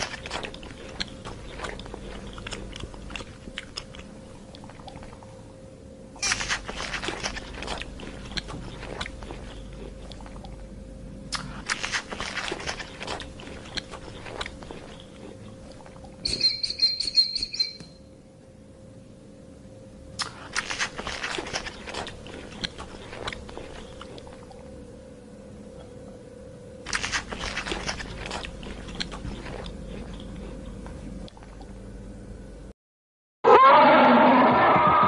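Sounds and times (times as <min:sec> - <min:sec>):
animal chewing and crunching food: 0:00.0 - 0:05.4, 0:06.2 - 0:10.7, 0:11.3 - 0:17.5, 0:20.2 - 0:24.8, 0:26.8 - 0:31.8
high-pitched pulsing call: 0:16.2 - 0:18.0.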